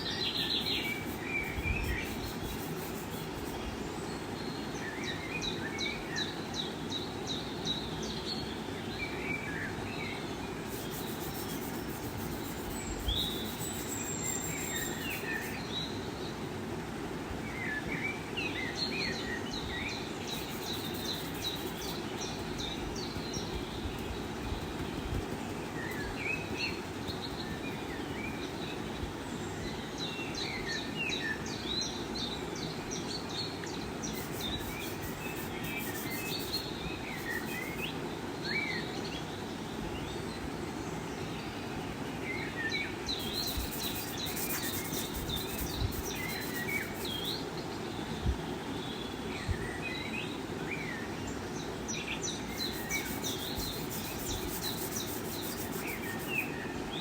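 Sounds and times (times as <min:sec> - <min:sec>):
high scratchy rustle: 0:00.0 - 0:03.7, 0:10.6 - 0:15.7, 0:20.2 - 0:28.8, 0:34.0 - 0:37.9, 0:43.1 - 0:47.5, 0:52.5 - 0:56.6
small birds chirping: 0:00.0 - 0:06.4, 0:10.0 - 0:16.3, 0:19.5 - 0:29.4, 0:33.4 - 0:38.0, 0:42.9 - 0:47.9, 0:52.0 - 0:57.0
background hiss: 0:00.0 - 0:09.1, 0:09.8 - 0:57.0.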